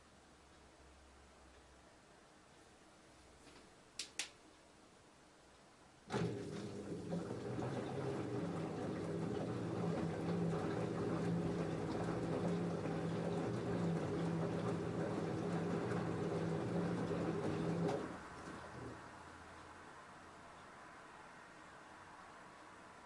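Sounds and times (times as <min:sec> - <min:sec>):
washing machine pump hum: 0:06.0 - 0:20.4.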